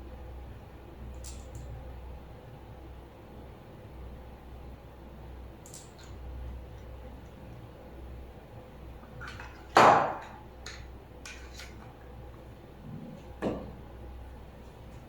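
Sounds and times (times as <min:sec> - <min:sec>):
hard objects knocking: 0:13.4 - 0:13.8.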